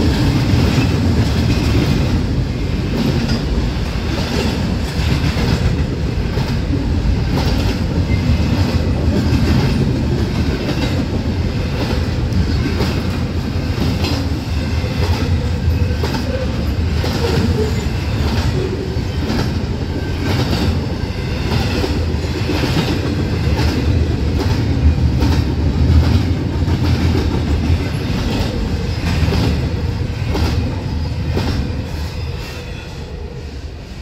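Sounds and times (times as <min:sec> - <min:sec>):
wheels clickety-clack on rails: 0:00.0 - 0:33.0
freight train wheels rumbling: 0:00.0 - 0:34.0.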